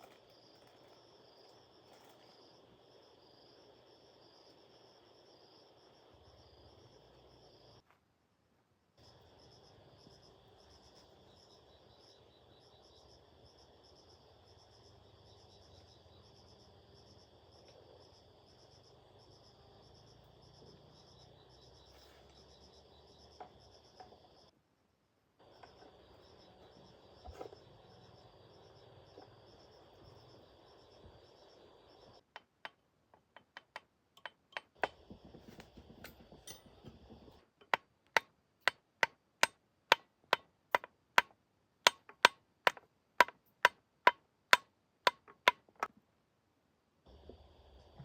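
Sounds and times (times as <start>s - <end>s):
insects chirring: 0.0s - 7.8s, 9.0s - 24.5s, 25.4s - 37.8s, 47.1s - 48.0s.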